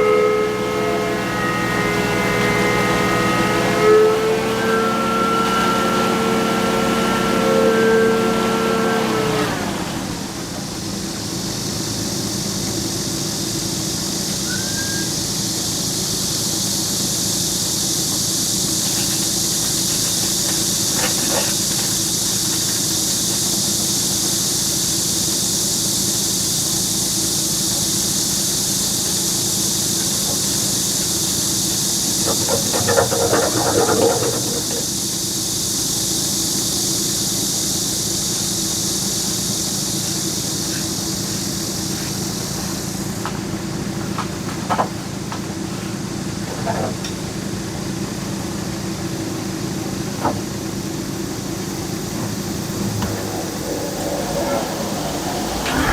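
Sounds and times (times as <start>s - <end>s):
engine running with hiss: 0.0s - 55.9s
metallic clatter and squealing: 14.5s - 15.2s, 32.0s - 35.0s, 52.3s - 55.9s.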